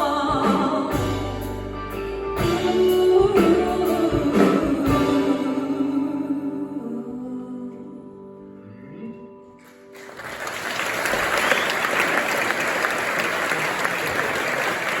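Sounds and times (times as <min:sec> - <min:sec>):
audience applause: 0:09.9 - 0:15.0.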